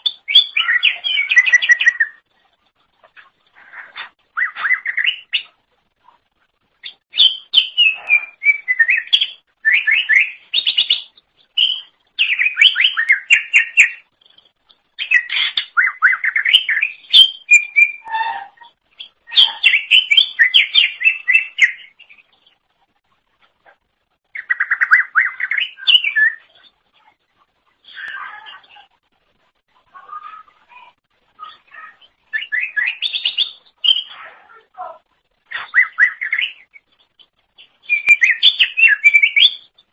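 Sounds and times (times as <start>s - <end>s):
bird singing whistled notes: 0.0s - 2.2s, 4.3s - 5.6s, 6.8s - 14.4s, 15.0s - 22.3s, 24.3s - 26.7s, 31.4s - 34.3s, 35.5s - 39.9s.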